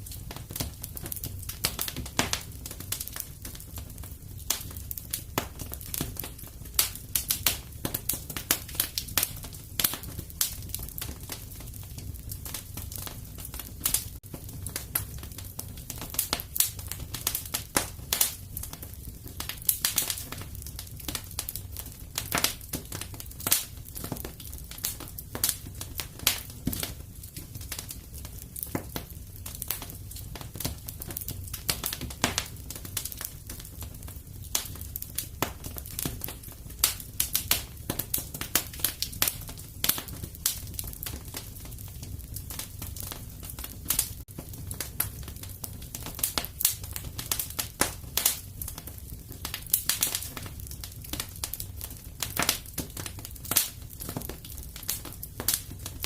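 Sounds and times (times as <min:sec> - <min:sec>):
fire rumbling: 0:00.0 - 0:56.0
fireplace fire crackling: 0:00.0 - 0:56.0.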